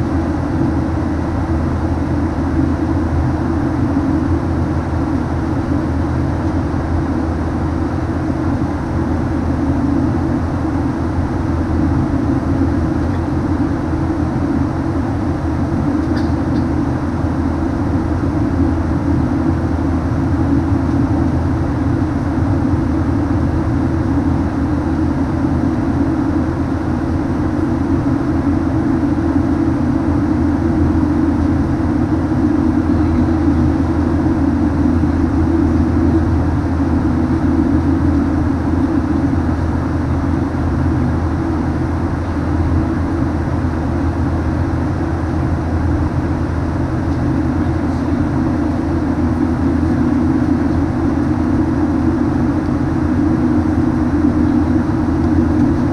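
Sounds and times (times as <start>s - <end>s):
airflow over fuselage: 0.0s - 55.9s
constant low hum: 0.0s - 55.9s
jet engine drone: 0.0s - 55.9s.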